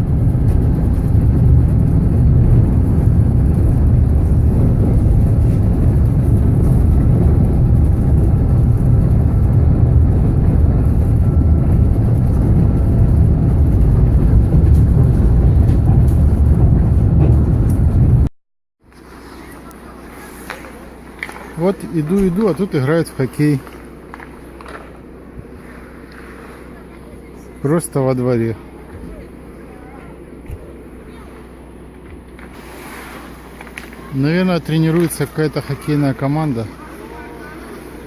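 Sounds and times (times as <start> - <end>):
train rumbling at speed: 0.0 - 18.3.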